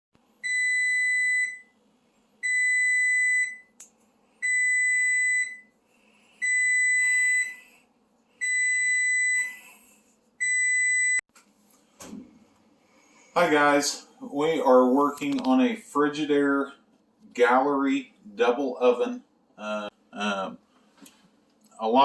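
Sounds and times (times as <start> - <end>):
oven alarm beeping: 0.4 - 1.8, 2.4 - 3.8, 4.4 - 5.8, 6.4 - 7.7, 8.4 - 9.7, 10.4 - 11.2.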